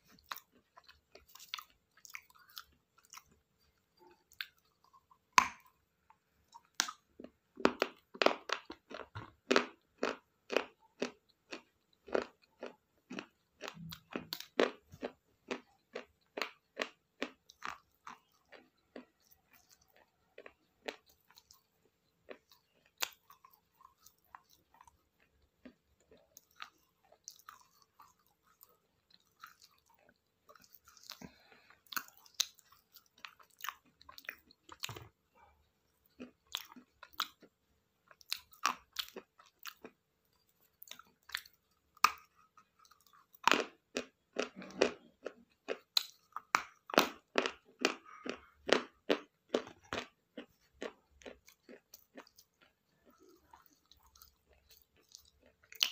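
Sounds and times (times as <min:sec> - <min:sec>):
crunchy food chewing: 0:00.0 - 0:55.9.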